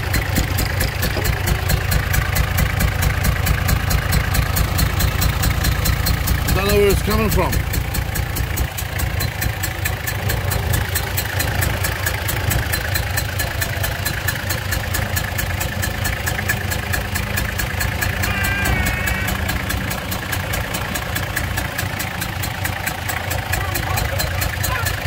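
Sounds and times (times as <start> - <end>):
engine idling: 0.0 - 25.0
fast ticking from engine: 0.0 - 25.0.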